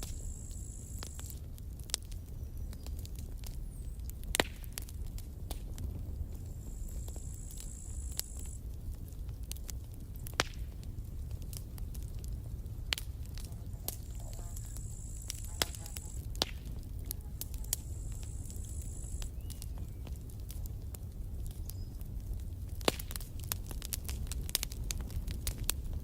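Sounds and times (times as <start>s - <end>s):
campfire crackling: 0.0s - 26.0s
low rumble: 7.1s - 21.5s
thin high hiss: 13.7s - 16.2s.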